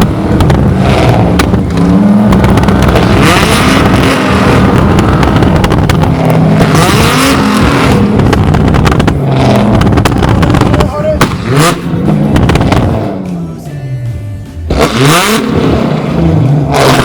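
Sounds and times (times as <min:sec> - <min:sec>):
exhaust bangs and pops: 0:00.0 - 0:13.3
car engines revving: 0:00.0 - 0:13.6, 0:14.6 - 0:17.0.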